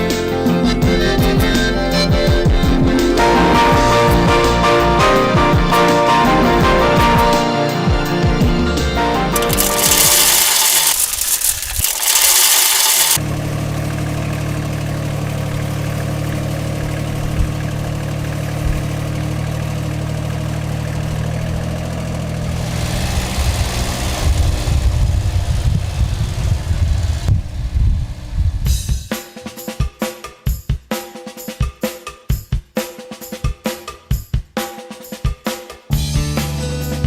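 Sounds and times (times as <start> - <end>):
diesel engine idling: 13.1 - 28.6.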